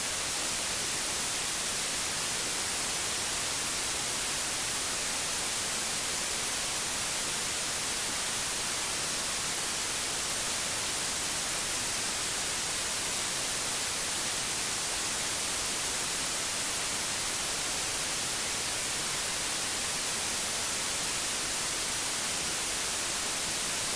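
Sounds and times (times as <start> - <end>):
white noise hiss: 0.0 - 23.9.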